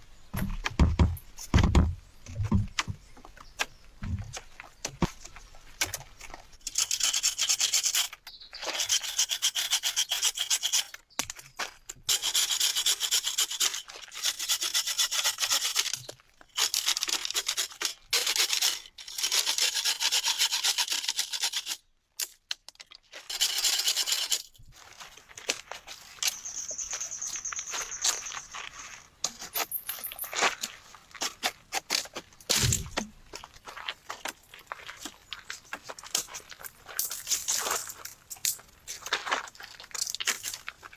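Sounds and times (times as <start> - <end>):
dry rasping on rough surface: 5.2 - 11.0, 12.1 - 21.8.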